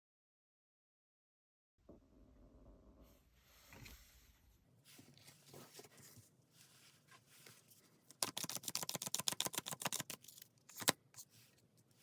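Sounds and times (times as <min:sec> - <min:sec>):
cards rustling: 0:05.2 - 0:11.7
cards clicking while shuffled: 0:08.1 - 0:11.3.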